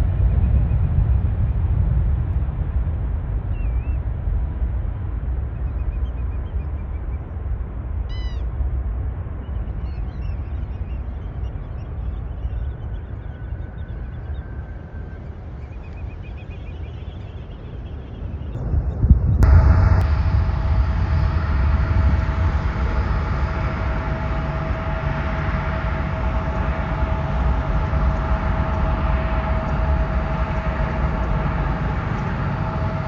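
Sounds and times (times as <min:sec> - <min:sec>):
steady low rumble: 0:00.0 - 0:33.0
birds chirping and calling: 0:08.1 - 0:08.5, 0:09.8 - 0:18.6.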